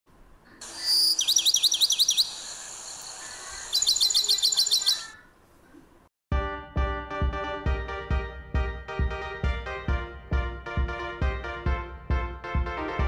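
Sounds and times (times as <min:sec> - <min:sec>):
bird chirping rapidly: 0:00.6 - 0:05.3
music with steady beat: 0:06.3 - 0:13.0.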